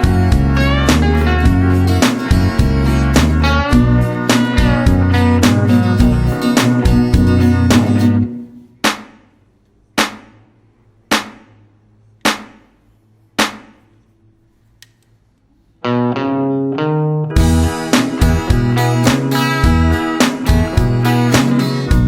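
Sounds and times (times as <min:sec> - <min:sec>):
guitar playing: 0:00.0 - 0:08.7, 0:15.8 - 0:22.0
sharp accented guitar hits: 0:00.0 - 0:09.0, 0:16.0 - 0:22.0.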